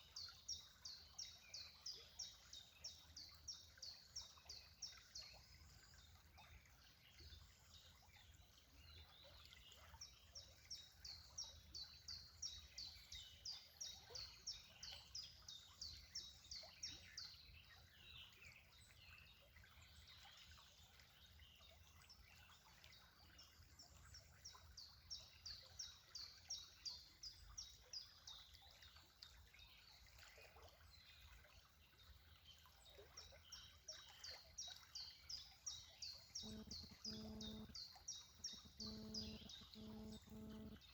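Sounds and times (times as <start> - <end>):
faint songbird chirping: 0.0 - 40.9.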